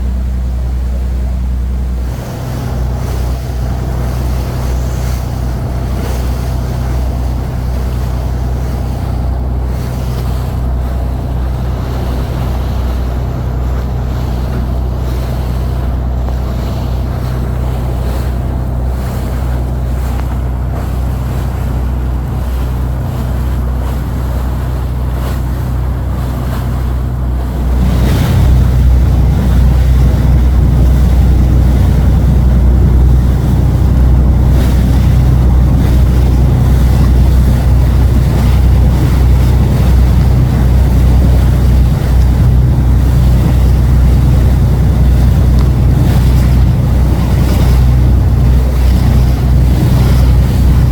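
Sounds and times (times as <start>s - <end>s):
boat engine droning: 0.0s - 50.9s
wind buffeting microphone: 0.0s - 50.9s.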